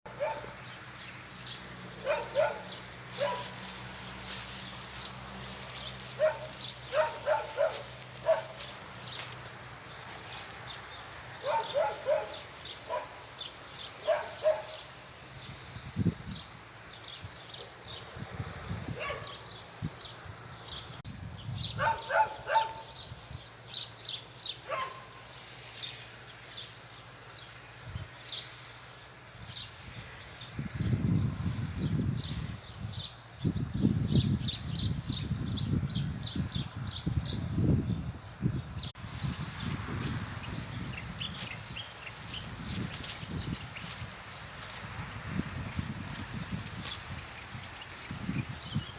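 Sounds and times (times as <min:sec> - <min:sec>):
dog barking: 0:00.1 - 0:00.6, 0:02.0 - 0:03.6, 0:06.2 - 0:08.6, 0:11.4 - 0:13.2, 0:14.0 - 0:14.9, 0:19.0 - 0:19.4, 0:21.8 - 0:22.9, 0:24.6 - 0:25.2
birds chirping: 0:00.1 - 0:48.9.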